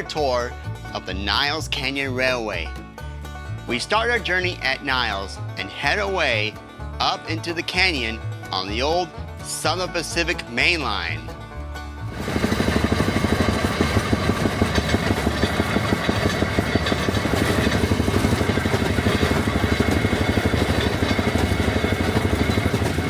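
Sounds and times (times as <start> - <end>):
small engine pulsing: 12.0 - 23.0.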